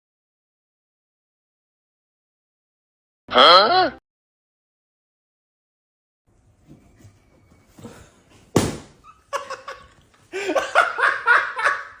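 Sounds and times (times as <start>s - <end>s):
sharp smack: 8.5s - 9.0s
people laughing: 9.3s - 12.0s.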